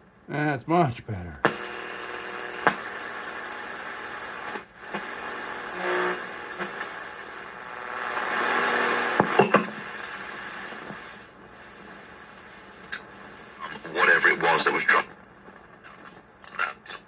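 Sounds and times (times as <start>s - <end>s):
radio tone: 0.3s - 1.6s
radio static hiss: 0.3s - 9.2s.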